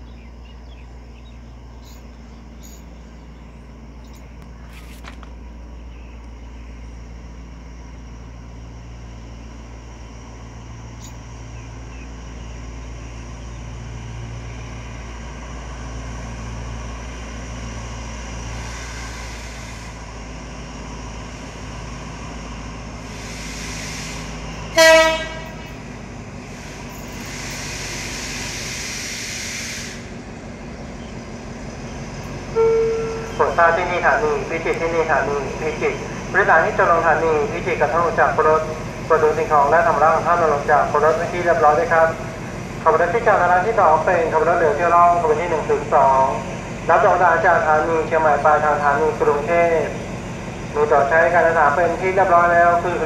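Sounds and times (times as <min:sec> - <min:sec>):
diesel train humming: 0:00.0 - 0:53.0
locomotive approaching: 0:00.0 - 0:53.0
locomotive horn blast: 0:24.7 - 0:25.8, 0:32.5 - 0:34.0.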